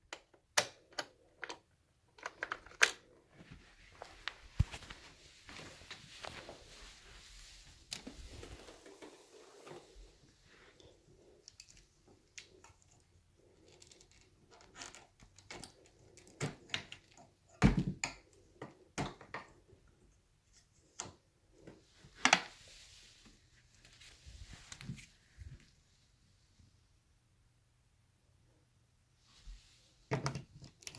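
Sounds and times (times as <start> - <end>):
plastic parts clicking and knocking: 0.1 - 3.2, 11.4 - 19.6, 30.1 - 30.9.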